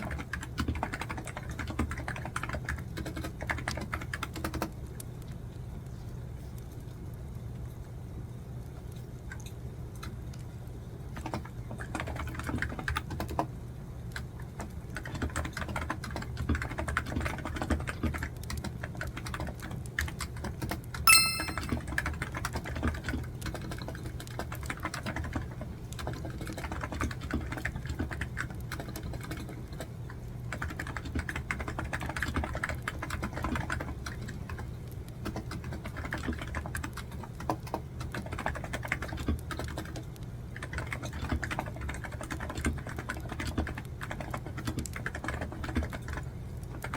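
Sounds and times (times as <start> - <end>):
computer keyboard typing: 0.0 - 4.7, 11.3 - 13.5, 15.0 - 21.8, 24.4 - 25.4, 30.5 - 34.6, 35.2 - 40.0, 40.6 - 46.9
bright ringing clink: 21.1 - 21.8.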